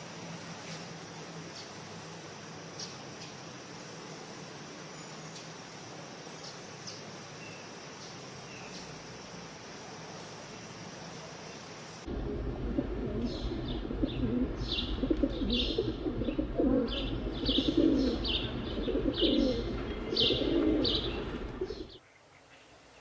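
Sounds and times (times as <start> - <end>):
birds calling low: 12.1 - 22.9.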